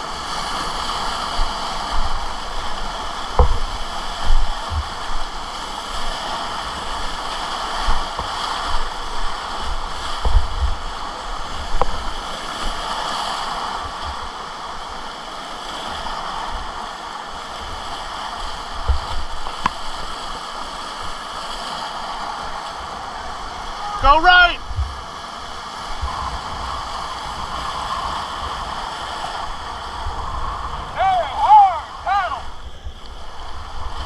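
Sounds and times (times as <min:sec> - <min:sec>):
river rapids rushing: 0:00.0 - 0:34.0
low thumps: 0:03.3 - 0:03.8
sharp knocks: 0:03.4 - 0:03.7.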